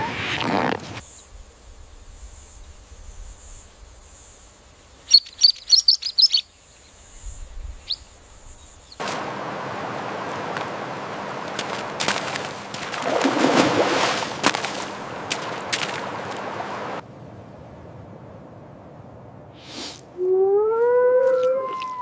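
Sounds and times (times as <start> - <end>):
small bird chirping: 4.9 - 9.0.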